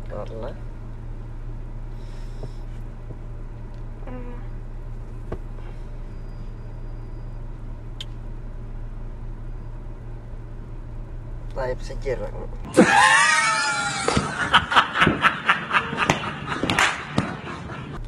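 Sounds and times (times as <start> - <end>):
low car rumble inside cabin: 0.0 - 12.8, 13.6 - 18.0.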